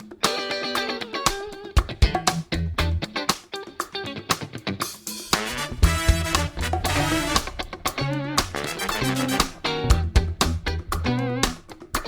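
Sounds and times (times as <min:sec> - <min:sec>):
electric guitar music: 0:00.0 - 0:12.0
bass line: 0:02.0 - 0:03.0, 0:05.4 - 0:11.6.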